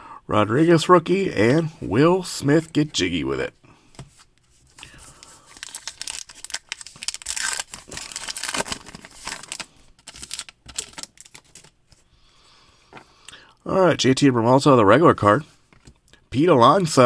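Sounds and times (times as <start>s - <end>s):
wrapper tearing and crinkling: 5.2s - 11.8s.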